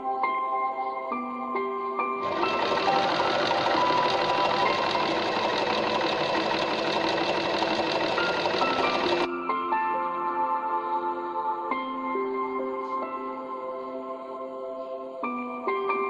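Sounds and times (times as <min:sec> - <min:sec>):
background music with sustained tones: 0:00.0 - 0:16.0
sewing machine stitching: 0:02.2 - 0:09.3.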